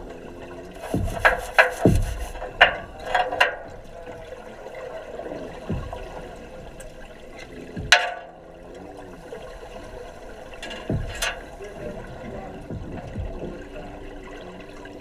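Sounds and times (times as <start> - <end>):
steady hum: 0.0 - 15.0
water bubbling underwater: 0.0 - 15.0.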